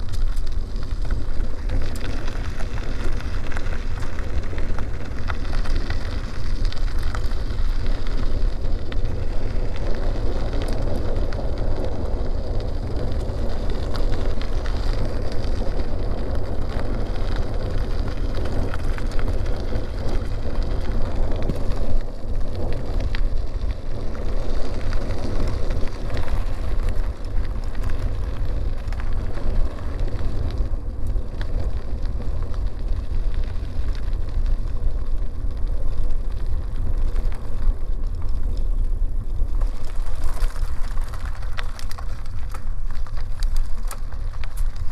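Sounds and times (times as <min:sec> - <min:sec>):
bicycle tyres rolling on dirt: 0:00.0 - 0:44.9
wind rumbling on microphone: 0:00.0 - 0:44.9.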